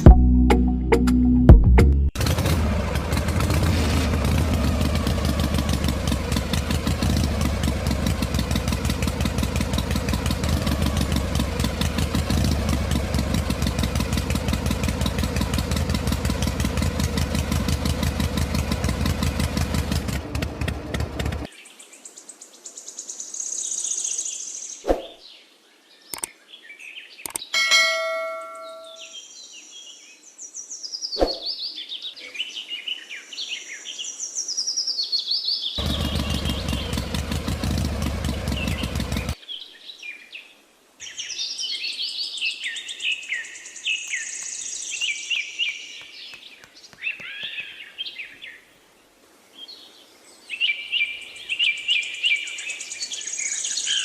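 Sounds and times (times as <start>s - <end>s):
sharp clicks: 26.1s - 26.3s, 27.2s - 27.5s
birds chirping and singing: 26.1s - 40.2s, 41.0s - 48.7s, 49.6s - 54.0s
short ringing tone: 27.6s - 29.2s
small motor running: 35.8s - 39.4s.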